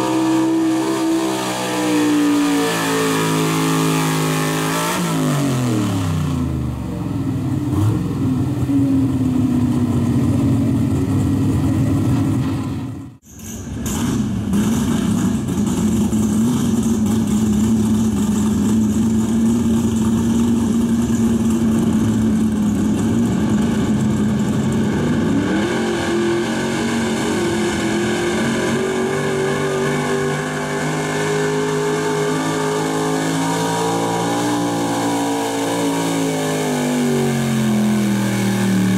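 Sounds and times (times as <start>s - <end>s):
truck engine at high revs: 0.0s - 38.9s.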